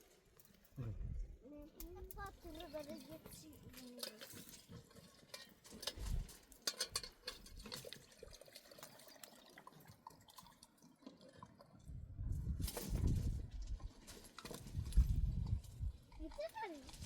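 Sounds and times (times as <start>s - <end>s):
water trickling and splashing: 2.1s - 17.0s
water drips: 7.0s - 11.9s.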